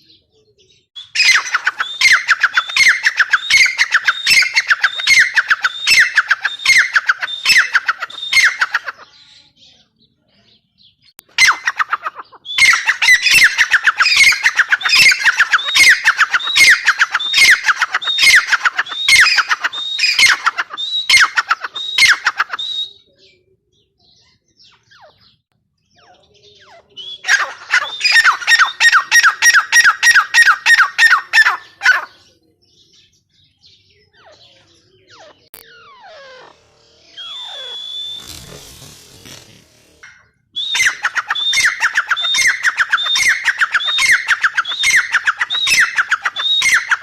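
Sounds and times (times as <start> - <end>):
francolin harsh repeated calls: 1.0 - 9.1, 11.2 - 22.9, 35.2 - 47.0.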